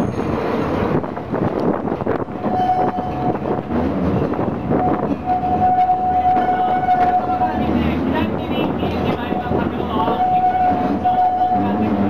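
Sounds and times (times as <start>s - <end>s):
train clattering and rumbling: 0.0s - 12.0s
mid-pitched squeal: 2.3s - 3.8s, 4.7s - 7.9s, 9.1s - 12.0s.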